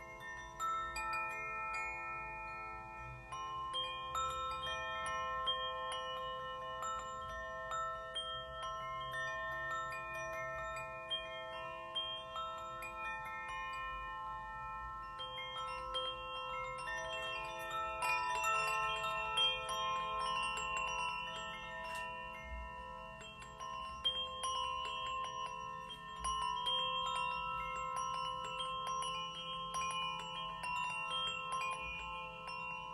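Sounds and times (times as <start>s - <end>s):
light high tinkling: 0.0s - 32.9s
tuned metal chimes ringing: 0.0s - 32.9s.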